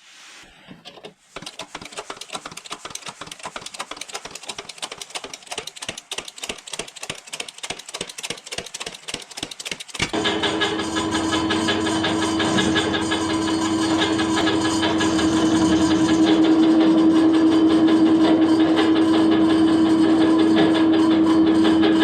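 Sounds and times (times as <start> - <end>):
sharp mechanical clicks: 1.0 - 10.2.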